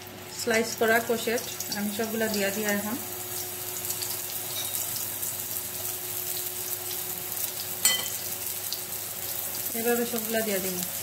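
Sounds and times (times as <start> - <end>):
slices sizzling in hot oil: 0.0 - 11.0.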